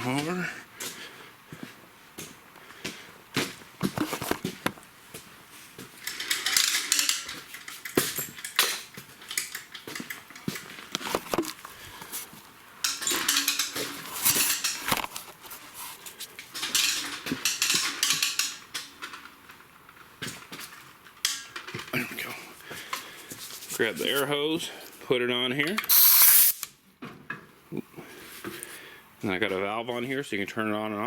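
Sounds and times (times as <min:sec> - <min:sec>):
metal clinking and clattering: 0:06.1 - 0:10.8, 0:12.8 - 0:14.9, 0:16.5 - 0:19.3
scraping rustling noise: 0:13.1 - 0:17.2, 0:23.2 - 0:24.4.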